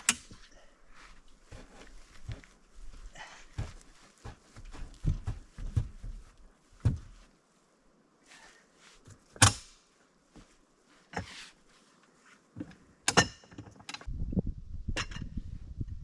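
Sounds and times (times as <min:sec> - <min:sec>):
knocks and thuds: 0:06.8 - 0:07.2.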